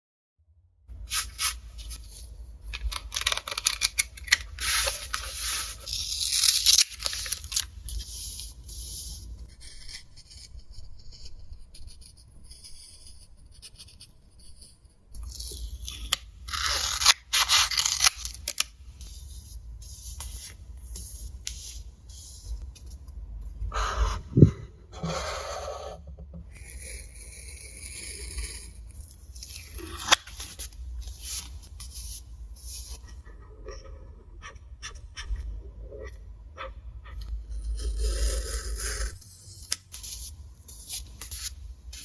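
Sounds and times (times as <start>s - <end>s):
handling rustling and scraping: 1.0s - 9.2s
steady low hum: 17.8s - 42.0s.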